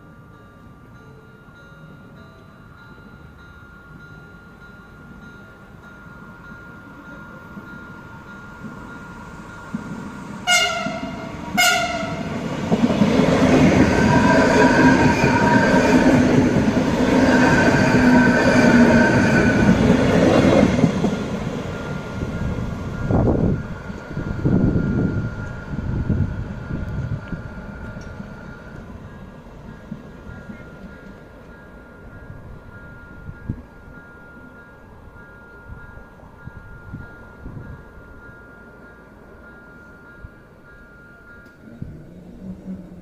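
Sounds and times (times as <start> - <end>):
train traction hum: 0.0 - 43.0
level crossing warning tone: 6.3 - 43.0
train wheels rumbling: 6.9 - 38.3
train horn blasts: 10.4 - 12.4.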